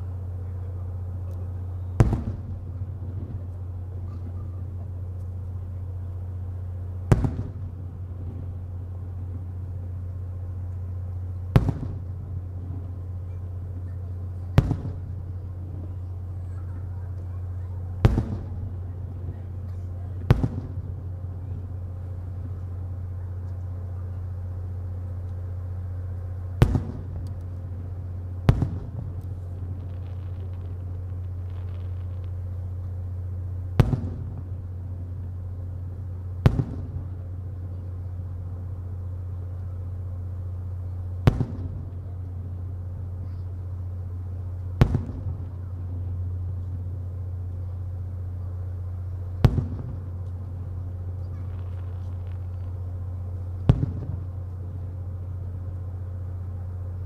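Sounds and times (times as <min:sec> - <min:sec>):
steady low hum: 0:00.0 - 0:57.0
firework shells booming: 0:00.9 - 0:05.5, 0:06.4 - 0:10.3, 0:11.4 - 0:16.4, 0:17.5 - 0:23.9, 0:24.6 - 0:37.6, 0:41.2 - 0:43.0, 0:44.6 - 0:46.5, 0:49.4 - 0:55.2.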